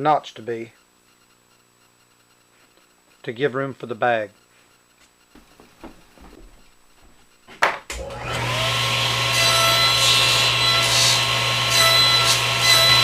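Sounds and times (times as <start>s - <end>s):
table saw motor whining: 7.9s - 13.0s.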